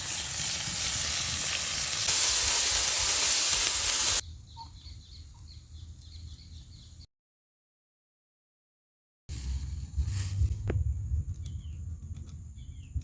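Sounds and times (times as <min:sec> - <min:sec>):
patties sizzling on a griddle: 0:00.0 - 0:04.2
faint chirping: 0:04.2 - 0:07.1.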